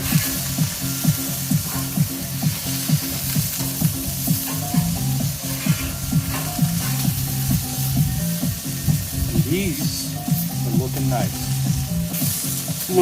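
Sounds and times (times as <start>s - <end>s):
background music with steady beat: 0.0s - 13.0s
food sizzling on a griddle: 0.0s - 13.0s.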